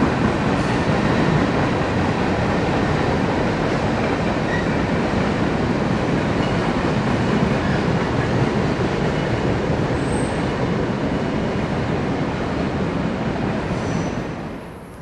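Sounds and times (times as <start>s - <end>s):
train wheels rumbling on bridge: 0.0s - 14.8s
faint high wheel squeal: 13.8s - 14.4s.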